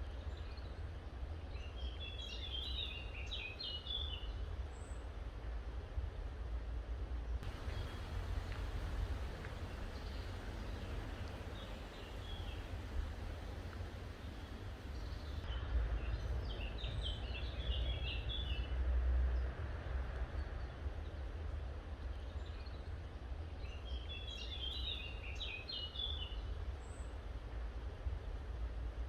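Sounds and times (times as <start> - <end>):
low outdoor rumble: 5.2 - 21.8
songbird chirping: 7.4 - 18.7.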